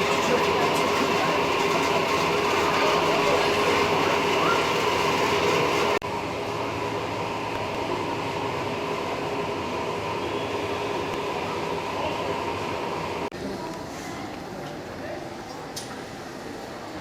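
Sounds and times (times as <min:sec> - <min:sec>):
train rumbling on track: 0:00.0 - 0:06.0.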